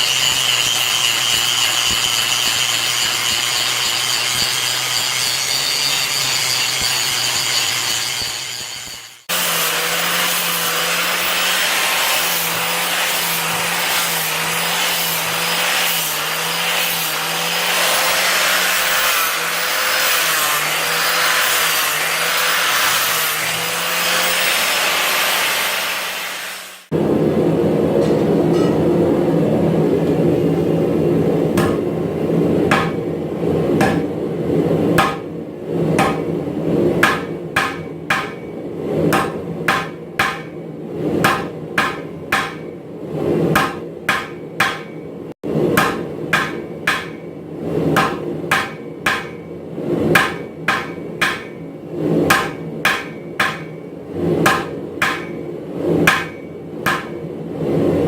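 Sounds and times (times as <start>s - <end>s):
hammer striking metal on anvil: 0.0s - 16.0s, 28.0s - 29.3s, 31.6s - 32.0s, 32.7s - 33.1s, 33.8s - 34.2s, 35.0s - 35.3s, 36.0s - 36.4s, 37.0s - 40.6s, 41.2s - 42.8s, 43.5s - 49.6s, 50.2s - 51.7s, 52.3s - 57.3s.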